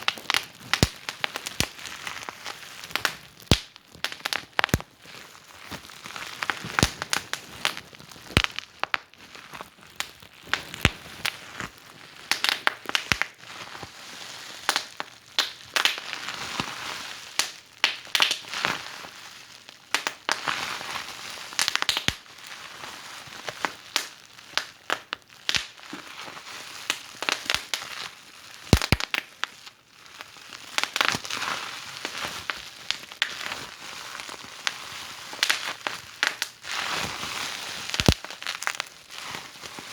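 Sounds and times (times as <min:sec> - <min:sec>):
fireplace fire crackling: 0:00.0 - 0:13.4, 0:14.6 - 0:16.3, 0:17.4 - 0:18.5, 0:19.8 - 0:20.5, 0:21.4 - 0:22.5, 0:23.4 - 0:27.8, 0:28.4 - 0:29.5, 0:32.0 - 0:39.9.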